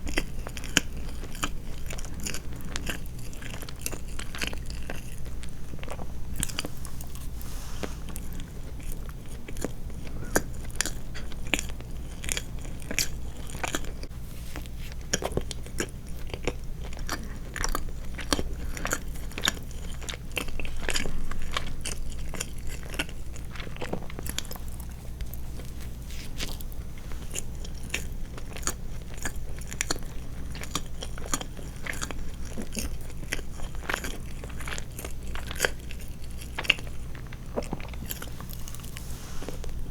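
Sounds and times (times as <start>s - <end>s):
low steady hum: 0.0s - 39.9s
chewing and wet mouth clicks: 8.1s - 25.8s, 26.4s - 38.8s.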